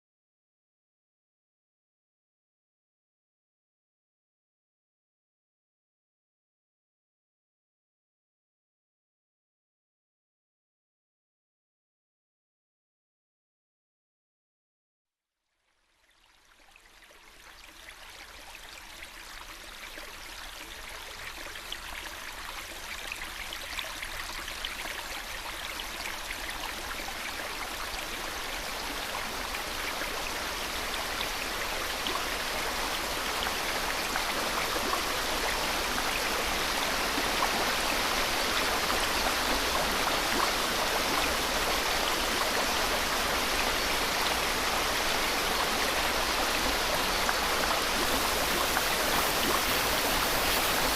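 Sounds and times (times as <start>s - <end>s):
rushing water hiss: 26.8s - 50.9s.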